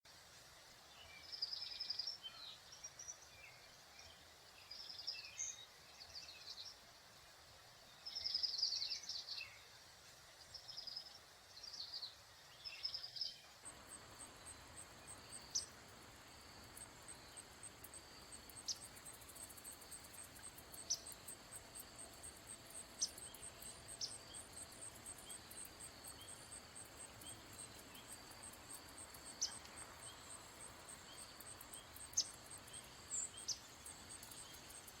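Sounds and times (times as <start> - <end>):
insect trill: 12.6 - 35.0.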